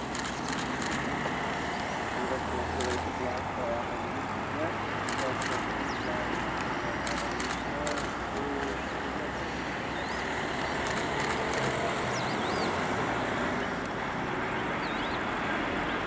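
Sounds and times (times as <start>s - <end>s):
jet engines idling: 0.0s - 16.0s.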